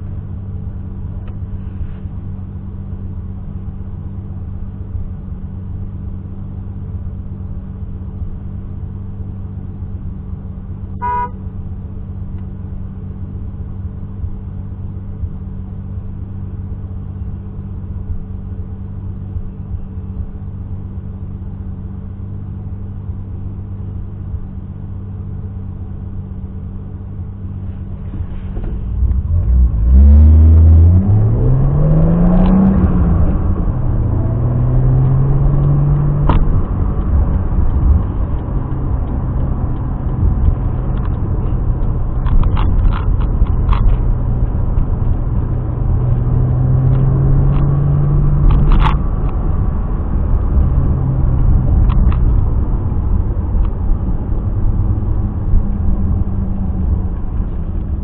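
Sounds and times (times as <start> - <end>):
car engine running: 0.0 - 58.0
car horn beep: 11.0 - 11.5.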